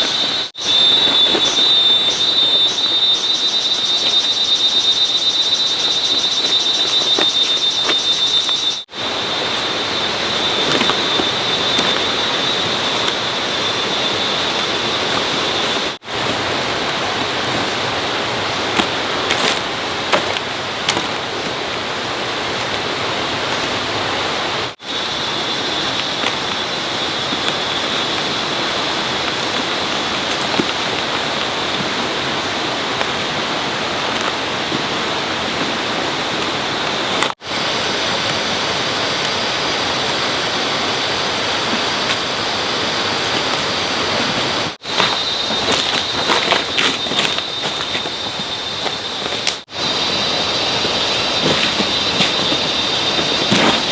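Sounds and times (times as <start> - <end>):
thin high whine: 0.0 - 20.1
rushing water: 0.0 - 53.9.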